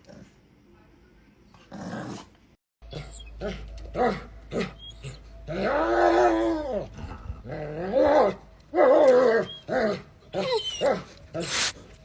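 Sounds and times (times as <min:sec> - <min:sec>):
dog howling: 0:04.0 - 0:07.0
dog short vocal sounds: 0:11.4 - 0:11.8.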